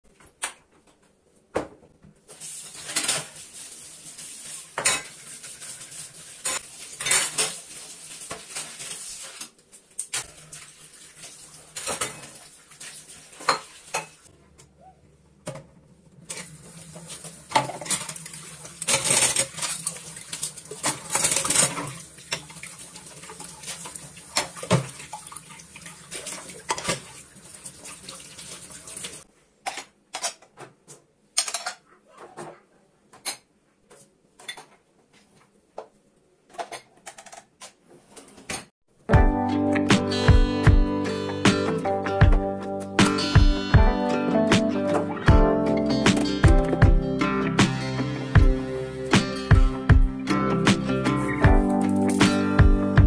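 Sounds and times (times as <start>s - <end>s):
dishes and cutlery clattering: 4.8s - 5.2s, 6.4s - 7.6s, 11.8s - 12.4s, 17.5s - 22.5s, 31.4s - 31.8s.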